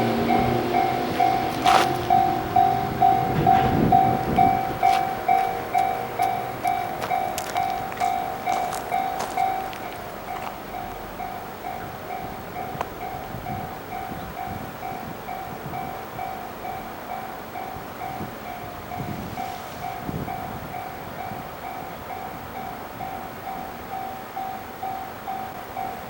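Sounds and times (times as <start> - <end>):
freight train rumbling: 0.0 - 26.0
level crossing bell ringing: 0.1 - 12.5.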